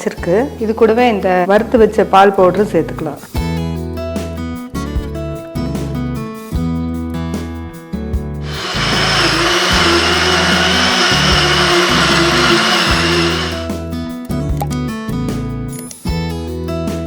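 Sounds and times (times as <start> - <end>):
mixer grinder whine: 8.4 - 13.8.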